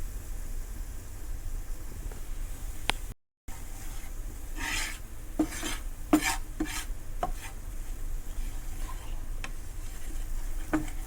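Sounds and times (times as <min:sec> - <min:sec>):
spoon scraping a pan: 0:03.5 - 0:11.0.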